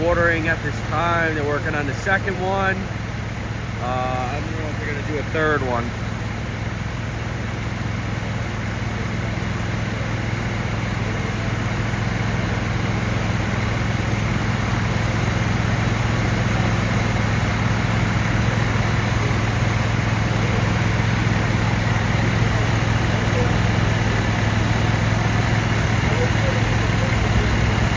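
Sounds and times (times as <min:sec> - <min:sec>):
large engine humming: 0:00.0 - 0:27.9
constant rushing noise: 0:13.6 - 0:27.9.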